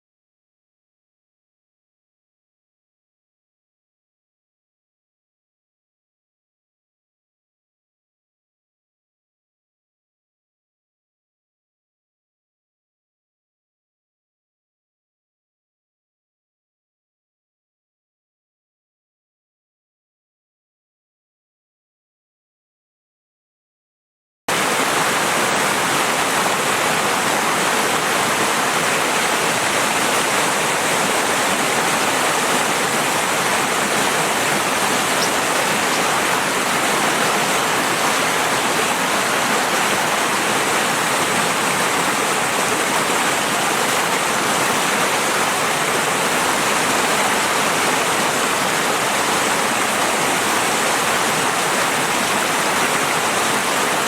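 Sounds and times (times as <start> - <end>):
river water rushing: 24.5 - 54.0.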